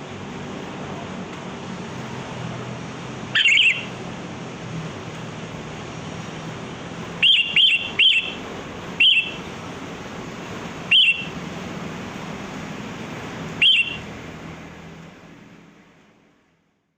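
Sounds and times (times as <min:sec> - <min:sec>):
steady background hiss: 0:00.0 - 0:16.9
bird chirping: 0:03.3 - 0:03.9, 0:07.2 - 0:08.4, 0:09.0 - 0:09.5, 0:10.9 - 0:11.4, 0:13.6 - 0:14.1.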